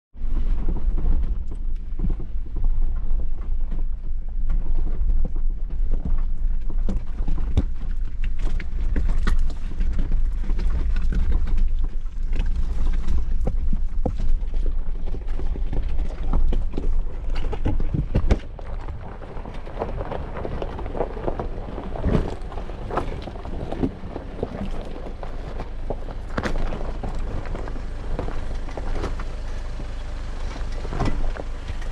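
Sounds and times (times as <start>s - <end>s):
engine rumble: 0.1s - 31.9s
tyres crunching over gravel: 6.4s - 31.9s.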